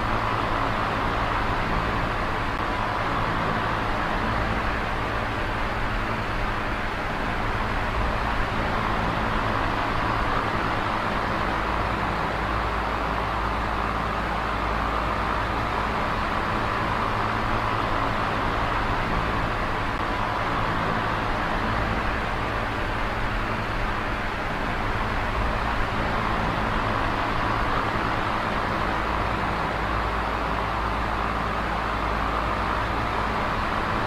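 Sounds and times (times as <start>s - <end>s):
electric fan running: 0.0s - 34.0s.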